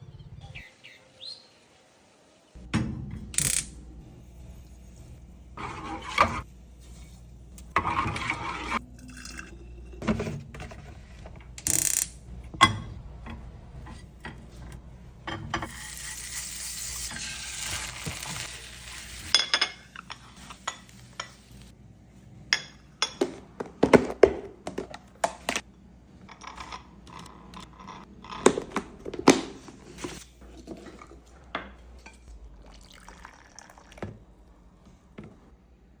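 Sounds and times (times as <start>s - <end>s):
dishes and glassware clinking: 19.3s - 21.6s, 22.5s - 24.0s
water running: 32.2s - 34.8s.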